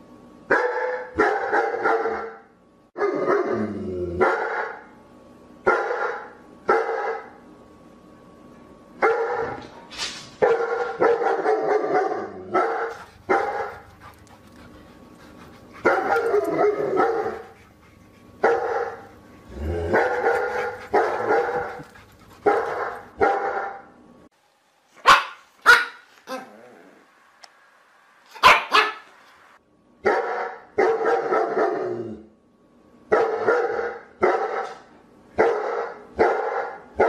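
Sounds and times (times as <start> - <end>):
dog barking: 0.5 - 2.4, 4.2 - 4.8, 5.7 - 7.4, 9.0 - 9.6, 10.4 - 13.8, 15.8 - 17.5, 18.4 - 19.1, 19.9 - 23.9, 25.0 - 26.1, 28.4 - 29.1, 30.0 - 31.8, 33.1 - 37.0.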